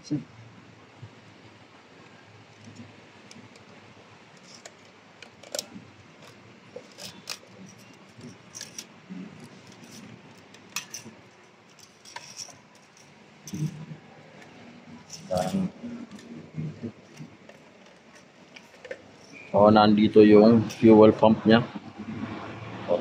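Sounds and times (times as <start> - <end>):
hand tools and metal parts clinking: 4.4 - 13.9, 15.0 - 15.7, 20.6 - 20.9.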